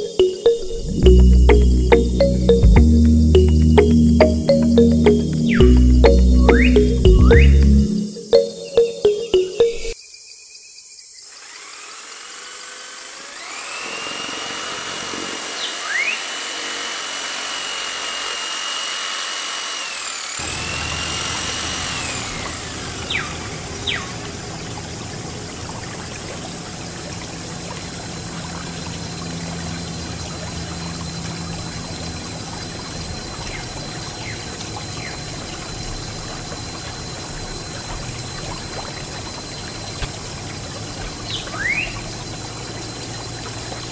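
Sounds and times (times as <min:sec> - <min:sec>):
small electric motor whining: 0:11.3 - 0:23.7
water pouring and trickling: 0:20.8 - 0:43.9.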